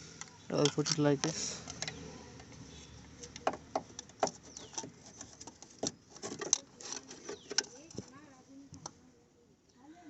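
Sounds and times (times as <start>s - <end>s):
light metal clicks and knocks: 3.2s - 8.1s.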